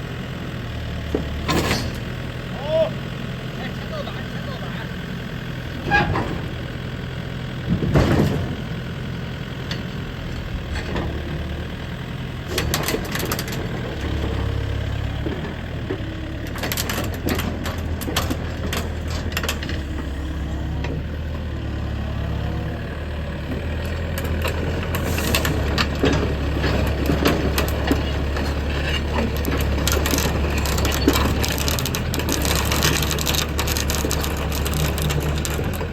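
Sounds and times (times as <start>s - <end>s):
excavator diesel engine running: 0.0s - 35.9s
metallic clicks and clanks: 24.2s - 35.9s.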